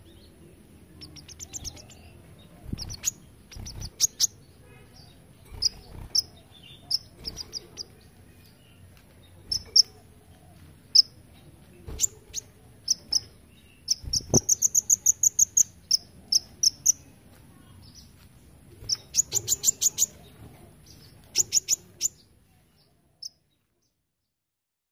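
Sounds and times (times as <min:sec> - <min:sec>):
bird singing high chirps: 0:01.0 - 0:08.8, 0:11.9 - 0:17.2, 0:18.8 - 0:22.3.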